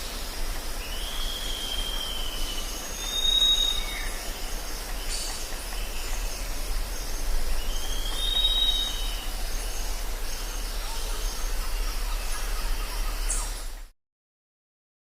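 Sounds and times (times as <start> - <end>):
whistled bird call: 0.9 - 4.5, 7.6 - 9.8
low hum: 4.1 - 13.9.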